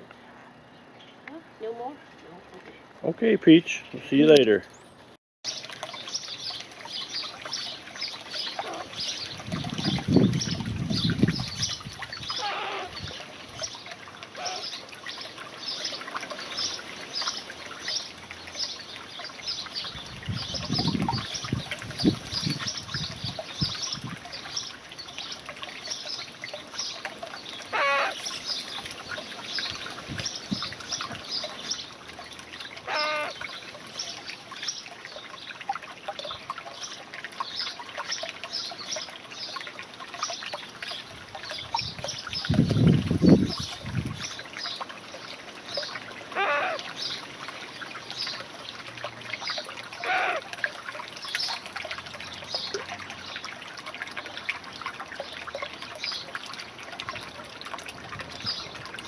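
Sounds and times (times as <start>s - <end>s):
short rattling bird calls: 32.9s - 33.4s.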